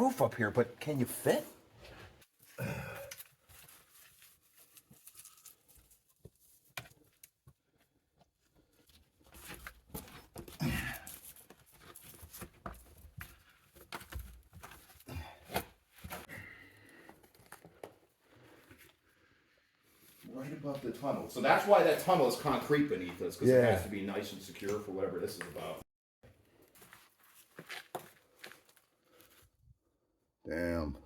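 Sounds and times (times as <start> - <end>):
people moving over rock and timbers: 1.8 - 19.2, 24.5 - 29.6.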